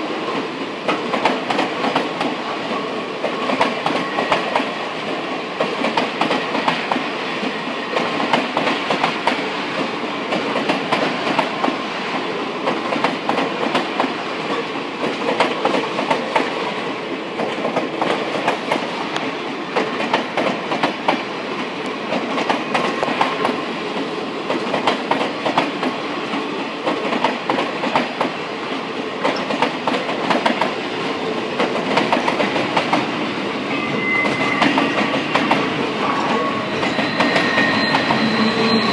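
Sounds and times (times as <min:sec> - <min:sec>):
train wheels clicking over rail joints: 0:00.3 - 0:33.3, 0:34.2 - 0:35.9
faint wheel squeal: 0:33.7 - 0:35.1, 0:36.0 - 0:38.9.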